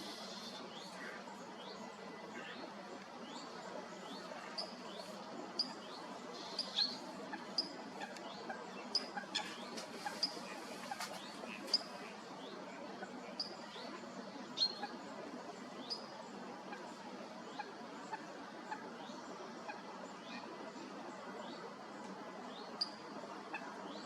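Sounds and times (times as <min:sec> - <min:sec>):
grebe chicks piping calls: 0:00.0 - 0:01.7, 0:04.0 - 0:12.2
steady background hiss: 0:00.0 - 0:24.0.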